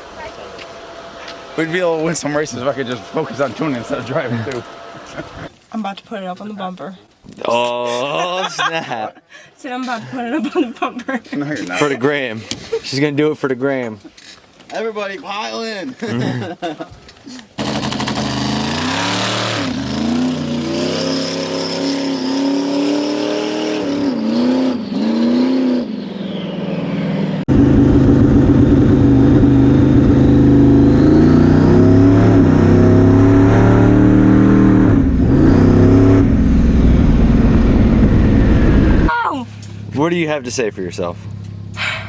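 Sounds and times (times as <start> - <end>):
car engine revving: 0.0 - 5.5, 17.6 - 42.0.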